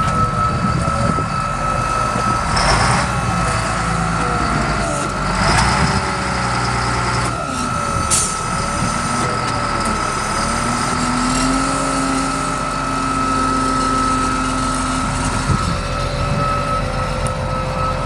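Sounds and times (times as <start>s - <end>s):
diesel engine running: 0.0s - 18.0s
high whine: 0.0s - 18.0s.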